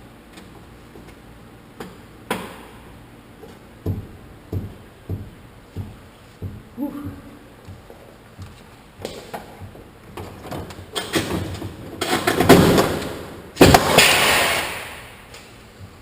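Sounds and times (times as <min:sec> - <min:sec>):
tool knocks: 0:03.8 - 0:10.6
pneumatic tool air burst: 0:13.8 - 0:15.0.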